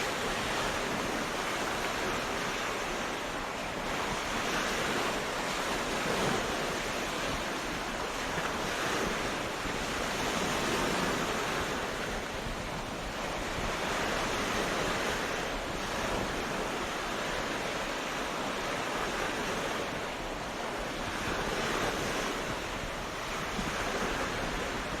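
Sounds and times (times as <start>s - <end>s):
ocean waves breaking on beach: 0.0s - 25.0s.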